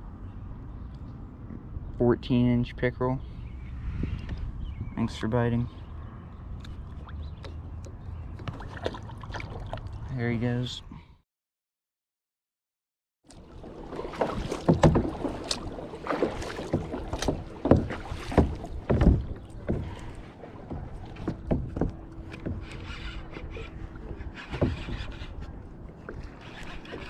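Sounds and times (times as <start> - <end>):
knocks and thumps against kayak hull: 6.6 - 9.8, 13.3 - 27.0
water splashing: 8.3 - 10.1, 13.3 - 27.0.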